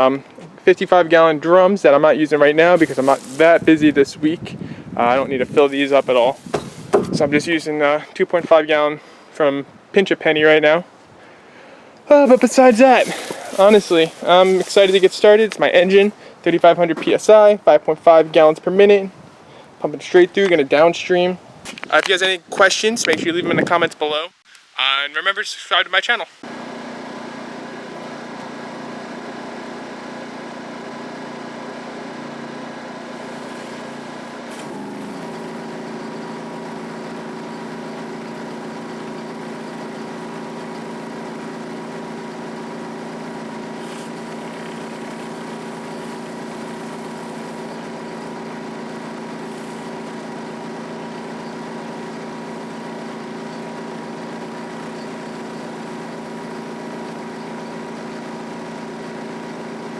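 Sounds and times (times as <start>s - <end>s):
pressure washer engine running: 2.4s - 7.6s, 12.1s - 16.3s, 26.5s - 59.9s
hissing water spray: 2.6s - 3.9s, 5.2s - 7.1s, 12.1s - 16.1s, 33.2s - 53.0s.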